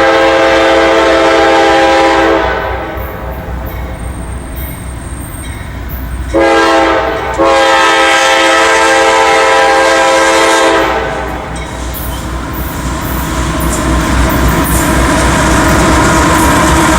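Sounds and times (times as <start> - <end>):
locomotive air horn blasts: 0.0 - 3.3, 6.3 - 11.6
passing train rumble: 0.0 - 16.9.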